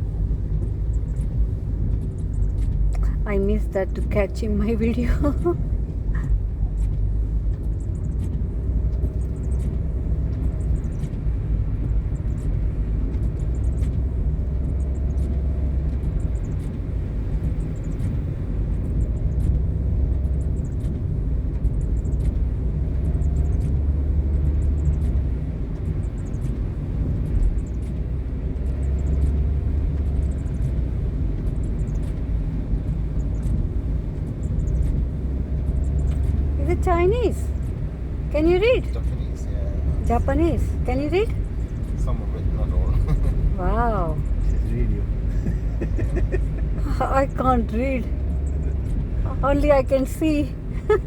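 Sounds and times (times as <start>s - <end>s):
car engine: 0.0s - 51.0s
road rumble: 0.0s - 51.0s.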